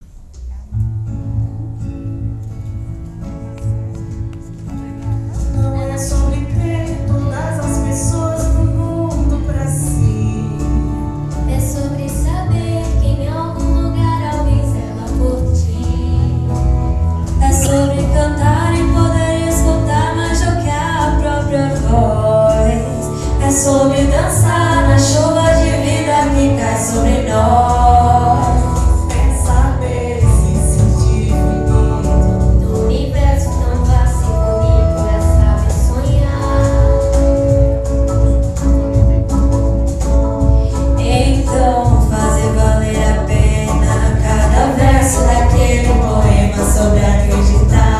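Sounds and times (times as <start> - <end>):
instrumental accompaniment: 0.0 - 47.9
women singing together: 17.4 - 37.4, 41.0 - 47.9.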